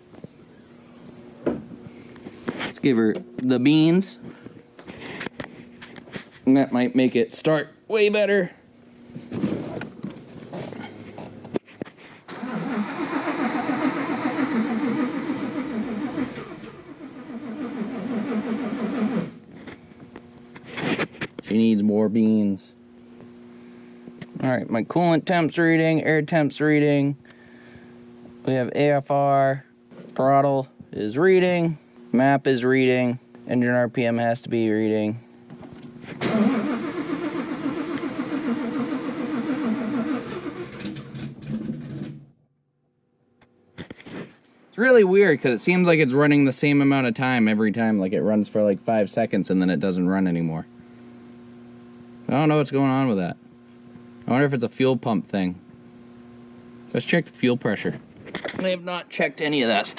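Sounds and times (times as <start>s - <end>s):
engine cranking on starter: 12.3s - 19.4s, 36.2s - 42.3s.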